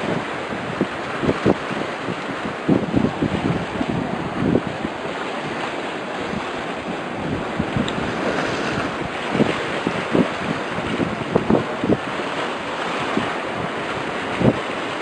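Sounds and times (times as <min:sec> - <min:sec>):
sea waves washing: 0:00.0 - 0:15.0
wind buffeting microphone: 0:00.0 - 0:15.0.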